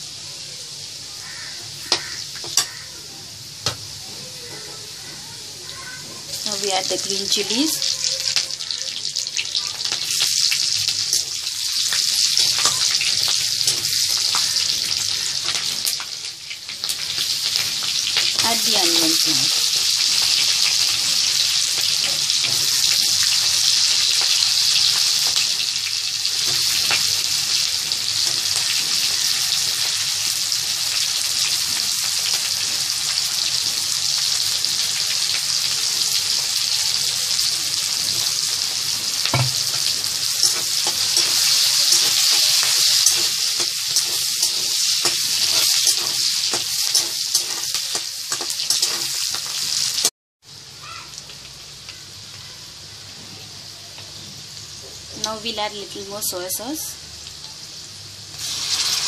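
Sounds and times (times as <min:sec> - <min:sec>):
onions sizzling in hot oil: 0:00.0 - 0:59.0
metal spatula scraping: 0:39.4 - 0:49.4.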